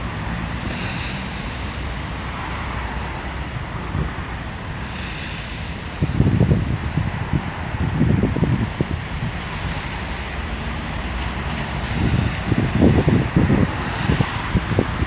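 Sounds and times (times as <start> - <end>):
train rumbling: 0.0 - 15.0
wind buffeting microphone: 3.5 - 15.0.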